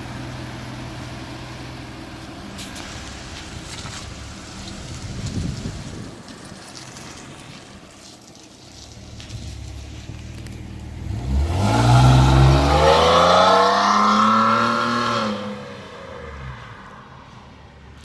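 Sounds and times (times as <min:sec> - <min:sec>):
car engine revving: 0:09.1 - 0:17.0.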